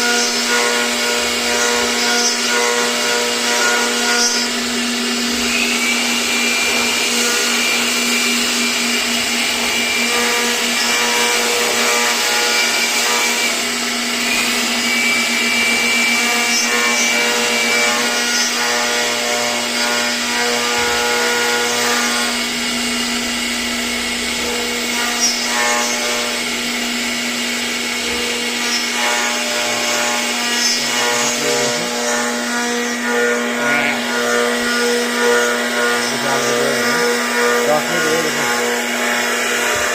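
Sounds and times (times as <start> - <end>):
router cutting wood: 0.0 - 39.9.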